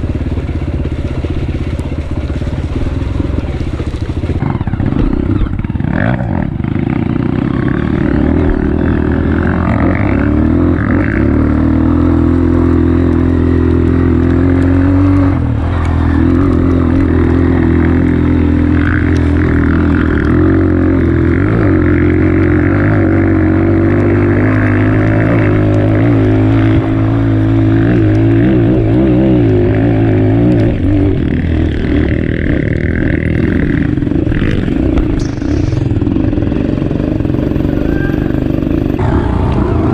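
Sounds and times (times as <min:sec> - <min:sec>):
motorcycle engine running under load: 0:00.0 - 0:39.9.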